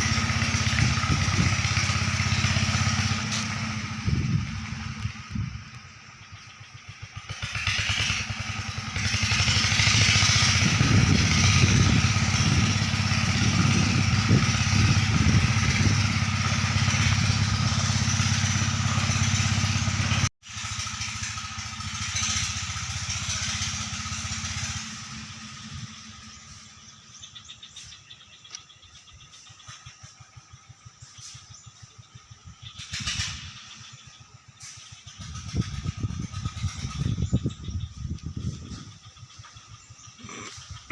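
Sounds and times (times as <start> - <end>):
pump engine running: 0.0 - 26.6.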